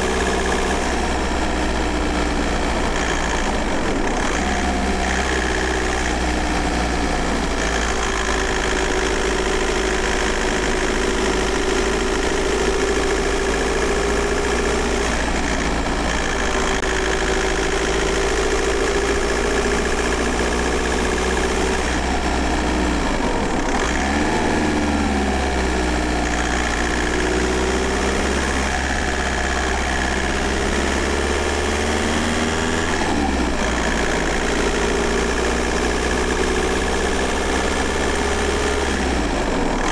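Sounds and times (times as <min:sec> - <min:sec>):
diesel car engine running: 0:00.0 - 0:39.9.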